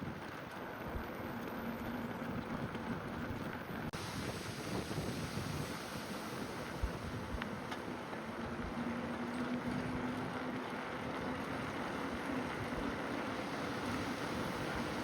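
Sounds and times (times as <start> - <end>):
bicycle rolling noise: 0.0 - 15.0
wind on microphone: 2.1 - 15.0.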